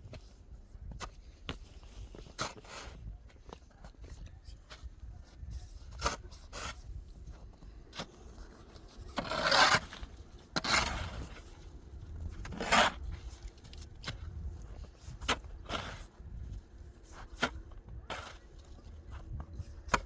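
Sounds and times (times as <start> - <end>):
tool scraping through mortar: 8.8 - 11.5, 12.4 - 13.8, 15.1 - 16.1.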